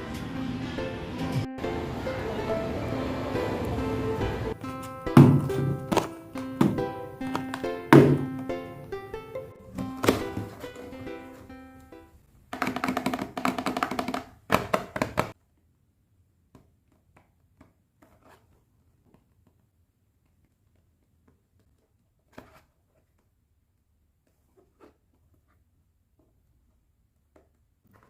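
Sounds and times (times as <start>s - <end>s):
plucked instrumental jingle: 0.0s - 12.2s.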